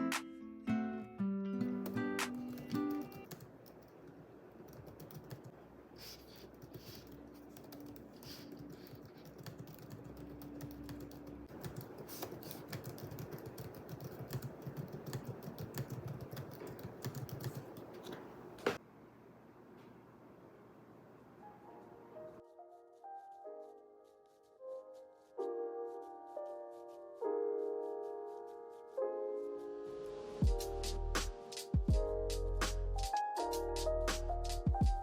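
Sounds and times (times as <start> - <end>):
keyboard typing clicks: 1.6 - 5.5, 6.7 - 18.8.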